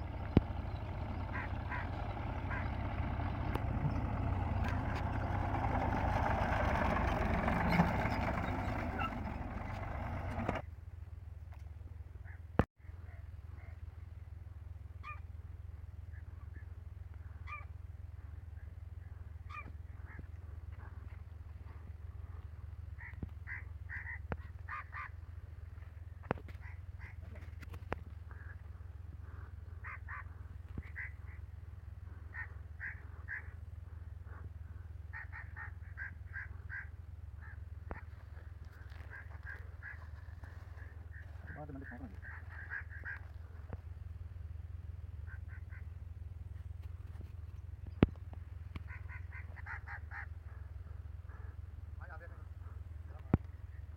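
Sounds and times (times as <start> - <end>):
steady low rumble: 0.0 - 12.2
bird calling harshly: 0.1 - 10.6, 38.8 - 43.7
short animal calls: 22.9 - 25.2, 32.1 - 33.6, 34.3 - 43.9, 48.7 - 51.8.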